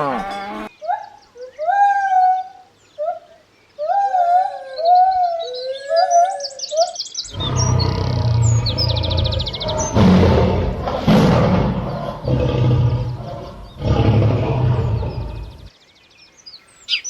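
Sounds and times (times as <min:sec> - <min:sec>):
loud noisy rumbling: 0:08.7 - 0:15.6
high bird chirps: 0:16.5 - 0:17.0
whistled bird calls: 0:16.5 - 0:17.0
rapid high bird trill: 0:16.6 - 0:17.0.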